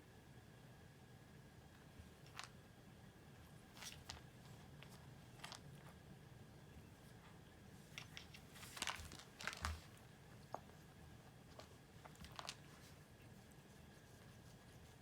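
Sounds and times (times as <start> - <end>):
faint clicks and rustling: 3.4 - 6.0, 6.9 - 15.0.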